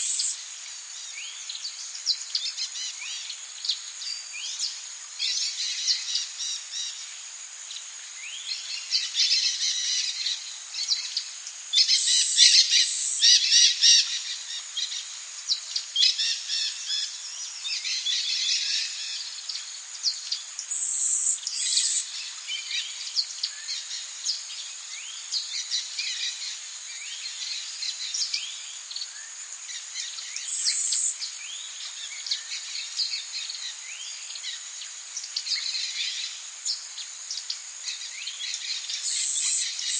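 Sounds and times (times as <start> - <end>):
high insect drone: 0.0 - 39.9
high-pitched insect buzzing: 20.7 - 22.1, 30.5 - 31.2, 39.1 - 39.9.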